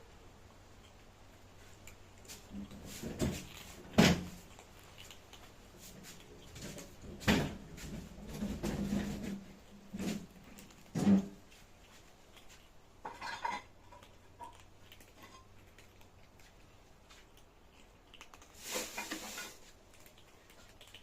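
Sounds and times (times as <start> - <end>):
dishes clattering: 13.0 - 13.7.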